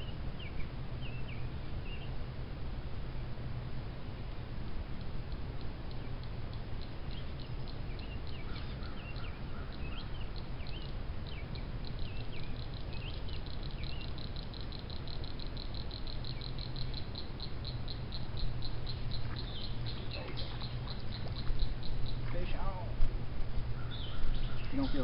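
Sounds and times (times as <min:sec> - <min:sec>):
bird chirping: 0:00.0 - 0:02.2, 0:05.3 - 0:22.9, 0:23.7 - 0:25.0
insect ticking: 0:04.3 - 0:25.0.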